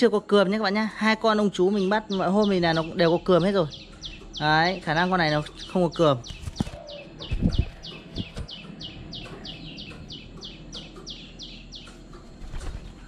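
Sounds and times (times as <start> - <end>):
bird chirping: 0.6 - 13.0
low thumps: 6.2 - 10.9.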